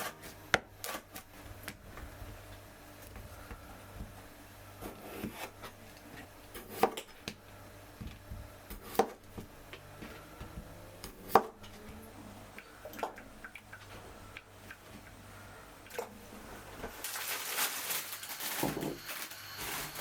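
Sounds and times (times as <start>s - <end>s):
knife chopping on wooden board: 6.6s - 7.4s, 8.0s - 11.6s.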